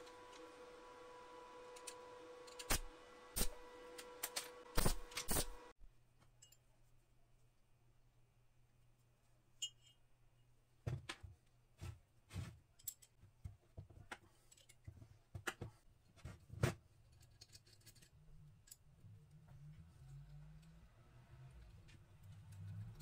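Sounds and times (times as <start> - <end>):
metal tools clicking and knocking: 17.1 - 18.8.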